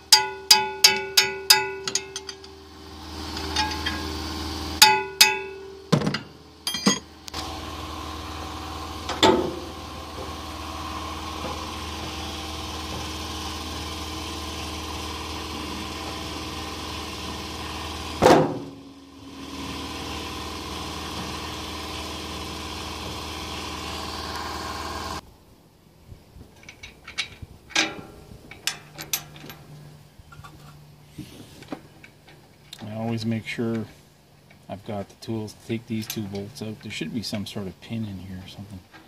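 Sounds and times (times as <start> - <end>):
metallic clank: 0.0 - 2.6, 3.3 - 4.1, 4.8 - 7.1, 26.6 - 30.8
engine idling: 0.0 - 25.2.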